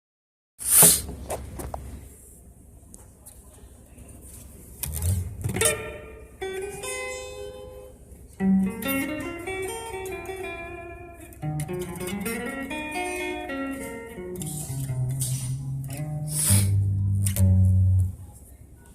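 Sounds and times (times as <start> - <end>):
guitar notes and chords plucked: 4.8 - 18.3.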